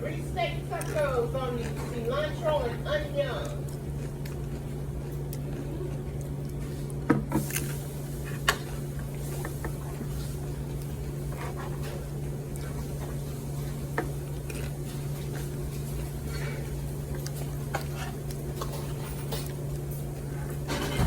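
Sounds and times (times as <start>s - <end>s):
steady low hum: 0.0s - 21.0s
tableware clicking and knocking: 20.7s - 21.0s.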